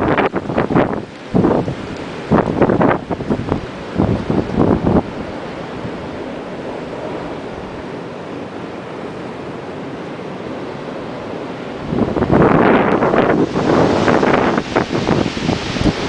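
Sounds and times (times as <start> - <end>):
wind buffeting microphone: 0.0 - 8.0, 11.7 - 16.0
blizzard wind rushing: 0.0 - 16.0.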